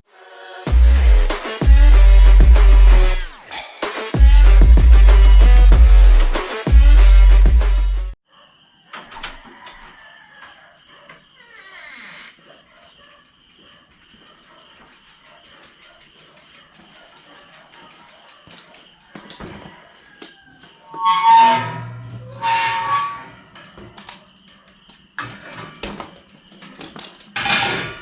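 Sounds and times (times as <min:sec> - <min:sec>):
crickets trilling: 0:08.2 - 0:28.0.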